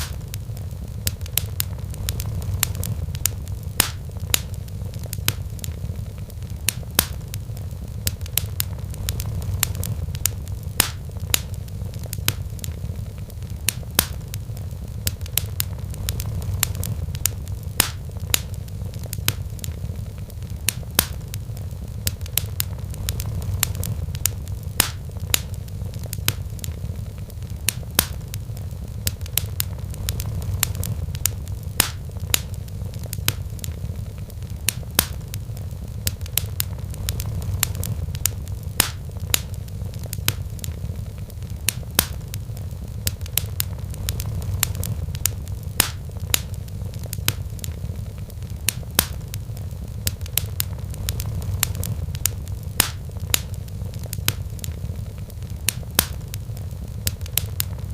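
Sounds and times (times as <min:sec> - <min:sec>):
sharp fire pops: 0:00.0 - 0:57.9
steady low rumble: 0:00.0 - 0:57.9
wood fire crackling: 0:00.0 - 0:57.9.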